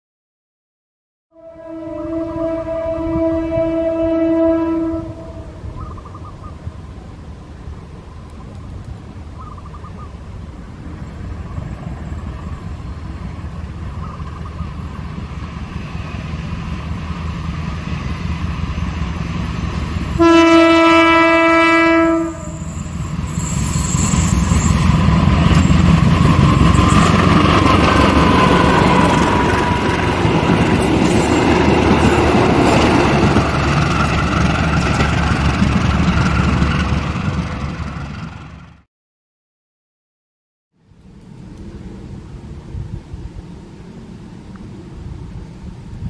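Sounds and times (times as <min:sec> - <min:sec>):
locomotive horn blast: 0:01.3 - 0:05.7, 0:20.0 - 0:23.0
passenger train rolling past: 0:01.4 - 0:38.9, 0:41.0 - 0:46.0.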